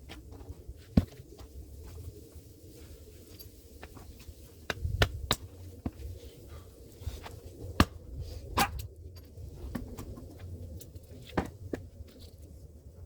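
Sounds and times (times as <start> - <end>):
axe striking firewood: 7.7 - 8.0.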